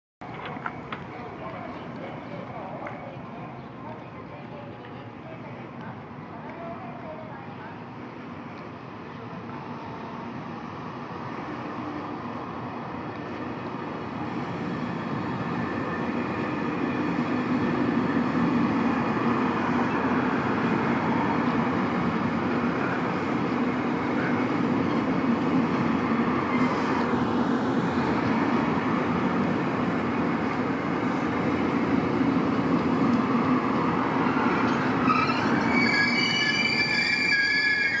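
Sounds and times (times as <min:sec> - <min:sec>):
train wheels rumbling on rail: 0:00.2 - 0:38.0
train brakes squealing: 0:26.4 - 0:27.1, 0:34.2 - 0:38.0.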